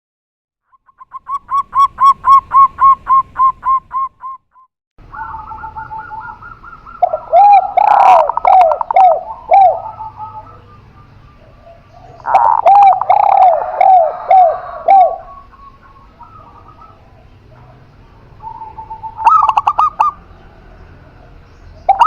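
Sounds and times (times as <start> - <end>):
doves cooing: 5.0 - 22.0.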